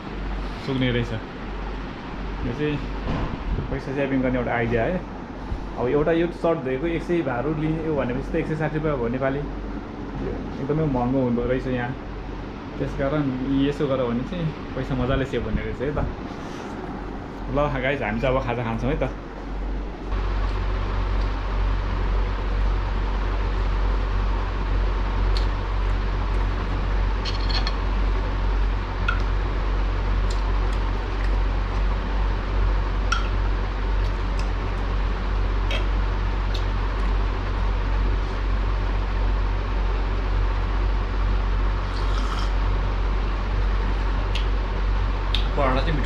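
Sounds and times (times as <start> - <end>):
electric fan humming: 0.0 - 46.0.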